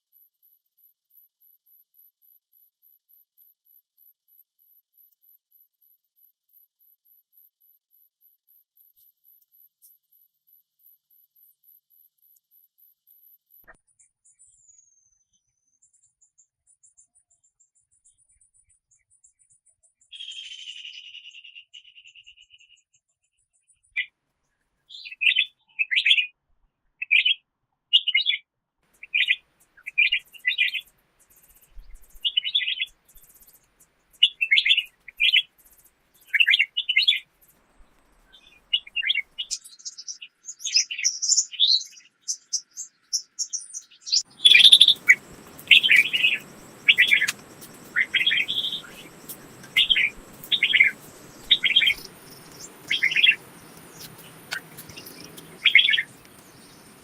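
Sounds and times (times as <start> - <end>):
small songbirds chirping: 0.0 - 26.3, 28.0 - 57.0
outdoor background hiss: 28.9 - 40.6, 44.3 - 57.0.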